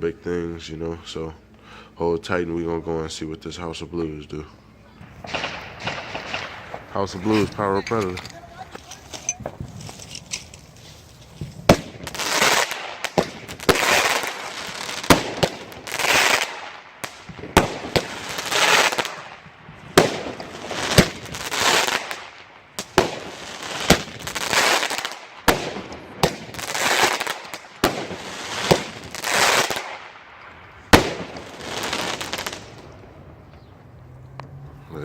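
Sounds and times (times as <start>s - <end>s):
firework crackling burst: 5.0s - 7.7s, 11.4s - 33.0s
firework shots banging: 5.0s - 9.9s, 11.4s - 33.1s.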